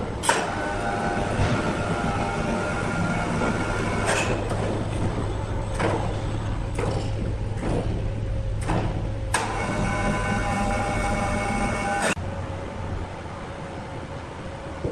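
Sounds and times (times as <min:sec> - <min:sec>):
sawmill machinery humming: 0:00.0 - 0:14.7
sharp knocks: 0:05.7 - 0:09.1.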